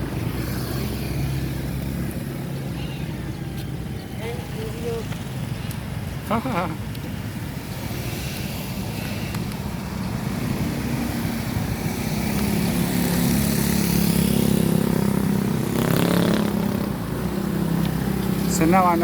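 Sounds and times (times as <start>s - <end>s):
vehicle engine passing: 7.4s - 19.0s.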